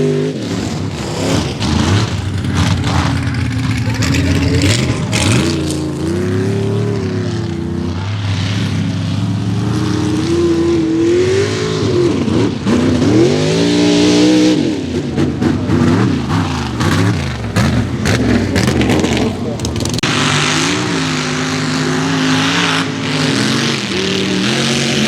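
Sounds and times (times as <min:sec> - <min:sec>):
mud truck engine at full throttle: 0:00.0 - 0:25.0.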